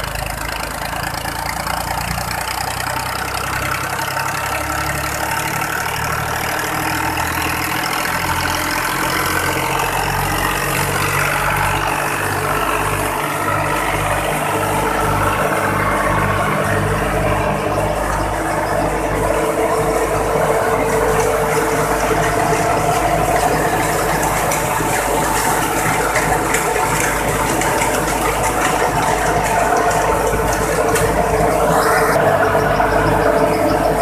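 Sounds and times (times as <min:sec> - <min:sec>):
tractor engine drone: 0:00.0 - 0:34.0
thresher clattering: 0:10.7 - 0:32.7
short rising whine: 0:28.7 - 0:34.0.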